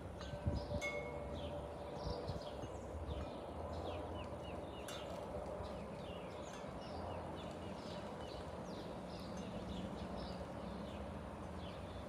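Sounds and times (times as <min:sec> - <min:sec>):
small birds chirping: 0:00.5 - 0:12.0.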